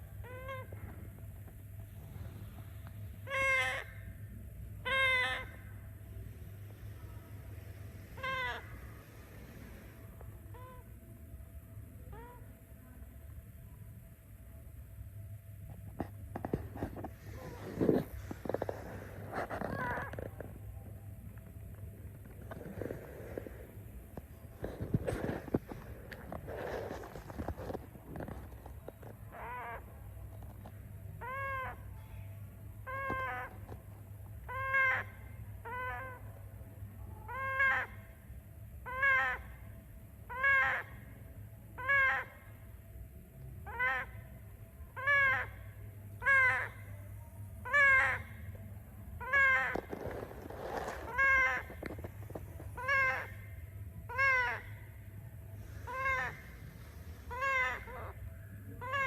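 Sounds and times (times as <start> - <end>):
parrot calling: 0.2 - 0.9, 3.2 - 4.2, 4.8 - 5.9, 7.0 - 9.8, 17.3 - 20.4, 29.3 - 30.0, 31.2 - 31.9, 32.8 - 33.7, 34.4 - 36.2, 37.3 - 38.0, 38.8 - 39.6, 40.3 - 41.0, 41.8 - 42.4, 43.6 - 44.2, 45.0 - 46.9, 47.6 - 48.5, 49.2 - 55.0, 55.6 - 59.0.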